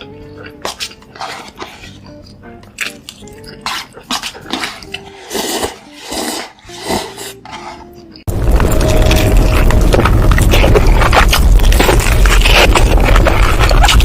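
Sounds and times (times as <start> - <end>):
crunchy bites and chewing: 0.0 - 6.0, 8.1 - 14.0
loud dense noise: 8.3 - 13.0.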